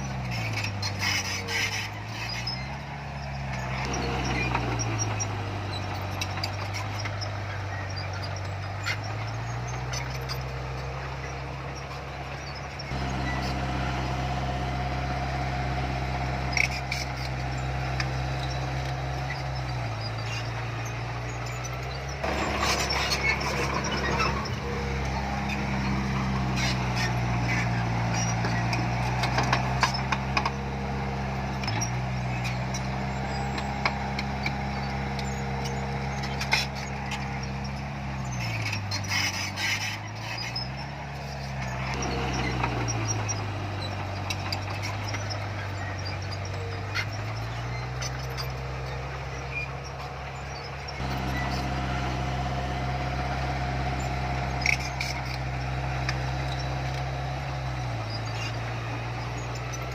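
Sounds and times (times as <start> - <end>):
heavy diesel engine running: 0.0 - 59.9
clanks and knocks: 21.5 - 30.8.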